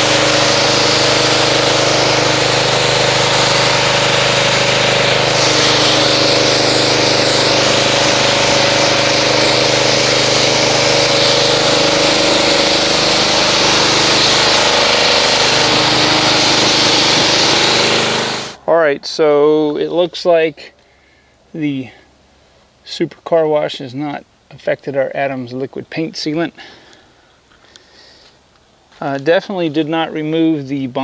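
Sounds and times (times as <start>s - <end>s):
pressure washer motor droning: 0.0s - 18.6s.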